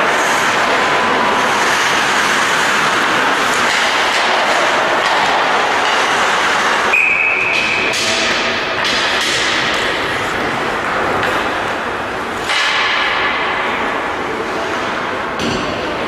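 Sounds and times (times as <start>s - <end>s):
team game noise in large hall: 0.0s - 16.0s
referee's whistle blast: 6.9s - 7.6s.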